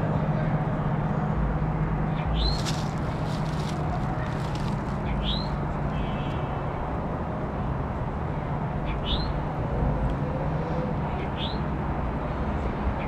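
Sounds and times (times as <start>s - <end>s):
bird rising chirp: 5.0s - 5.6s.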